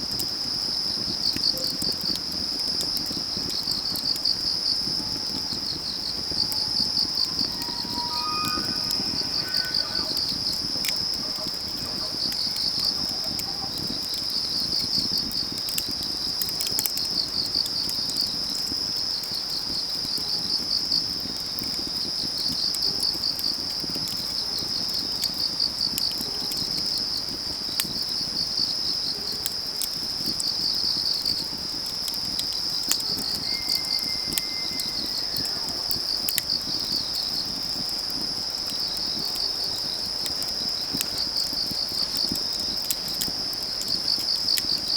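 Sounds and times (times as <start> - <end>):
crackling wood fire: 0.0 - 44.9
crickets chirping: 0.1 - 44.9
high whistle-like call: 6.1 - 13.7, 33.0 - 35.8.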